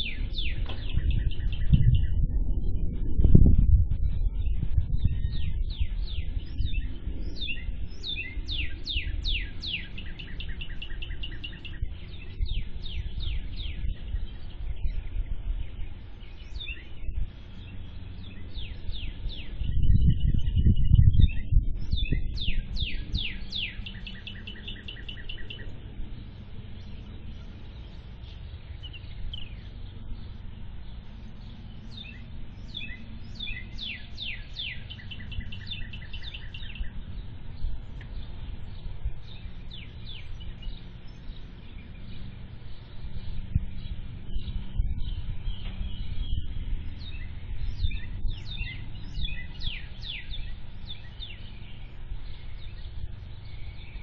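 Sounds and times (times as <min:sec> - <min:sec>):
birds chirping and trilling: 0:00.0 - 0:54.0
steady low rumble: 0:00.0 - 0:54.0.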